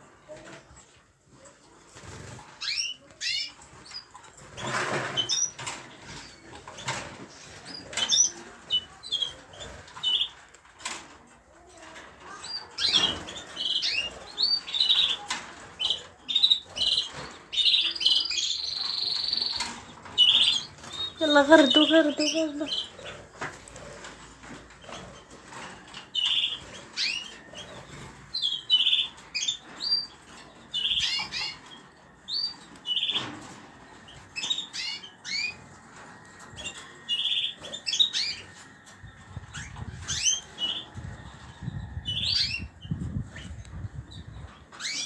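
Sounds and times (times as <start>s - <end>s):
birds chirping and twittering: 1.9s - 45.0s
bird trill: 25.6s - 35.7s, 36.5s - 38.7s.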